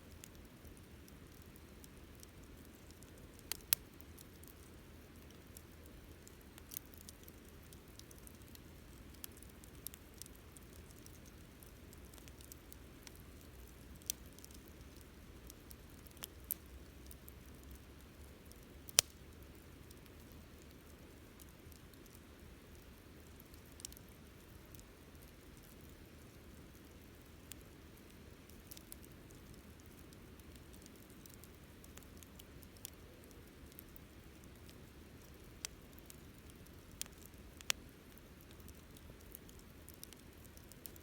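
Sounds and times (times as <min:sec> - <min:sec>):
campfire crackling: 0:00.0 - 0:41.0
sharp fire pops: 0:18.9 - 0:19.2.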